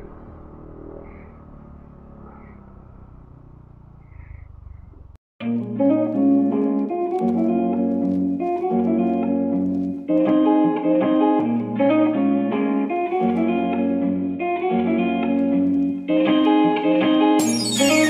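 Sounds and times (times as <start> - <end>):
guitar background music: 5.4 - 18.0.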